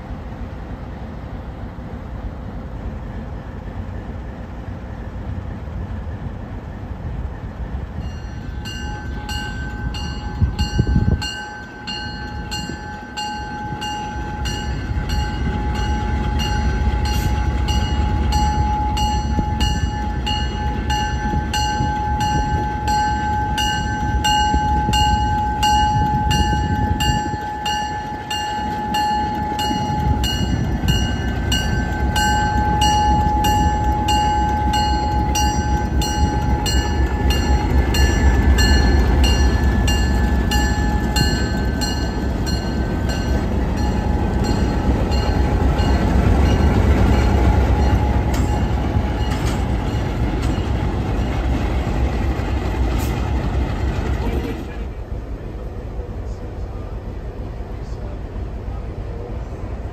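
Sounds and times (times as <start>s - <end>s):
passenger train rumbling: 0.0s - 59.9s
bell ringing steadily: 8.0s - 51.4s.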